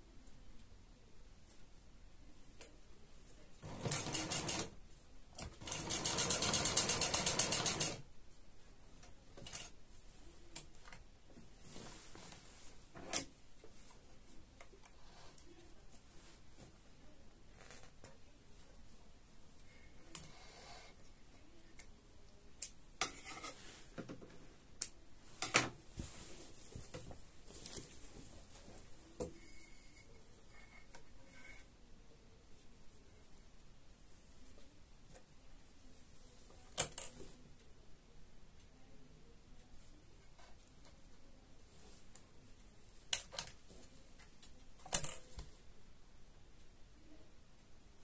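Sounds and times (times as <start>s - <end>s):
rustling of sewing materials: 1.3s - 22.4s, 23.0s - 37.7s
sewing machine stitching: 3.6s - 4.8s, 5.4s - 8.0s.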